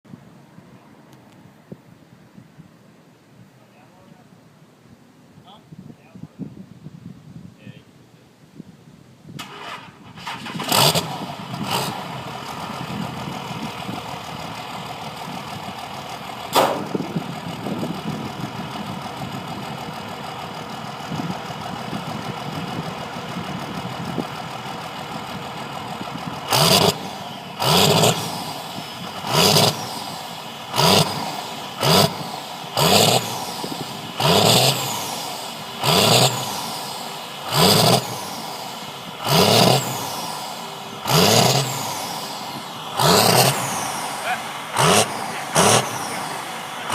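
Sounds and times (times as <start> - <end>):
diesel engine cranking and idling: 9.3 - 46.9
diesel engine revving hard: 9.5 - 46.9.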